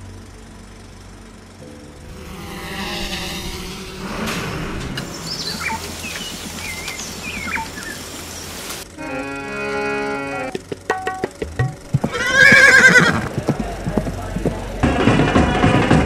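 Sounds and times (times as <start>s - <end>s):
low steady drone: 0.0s - 10.6s
outdoor hiss: 1.9s - 8.9s
rising sweeping swell: 1.9s - 8.9s
birds chirping: 2.0s - 8.8s.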